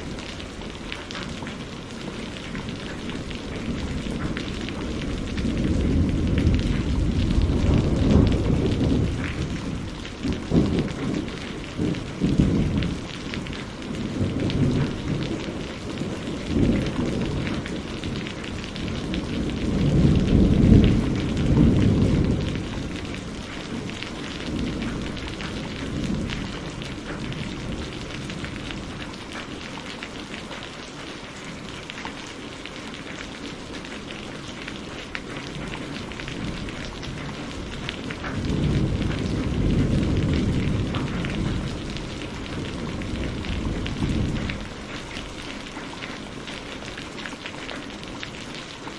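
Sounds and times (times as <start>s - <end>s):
heavy rain: 0.0s - 48.9s
rolling thunder: 2.4s - 29.1s, 35.5s - 44.9s.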